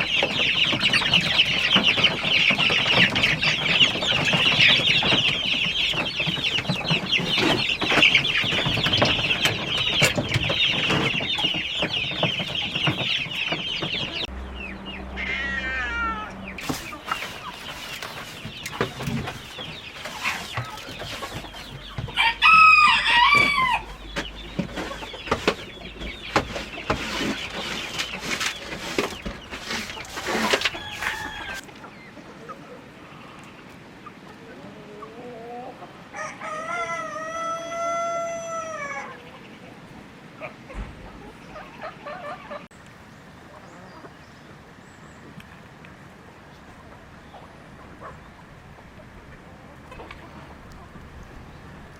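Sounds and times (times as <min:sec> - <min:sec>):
chickens clucking: 0:00.0 - 0:51.9
rooster crowing: 0:15.0 - 0:16.6, 0:22.2 - 0:24.0, 0:30.6 - 0:31.7, 0:36.1 - 0:39.2.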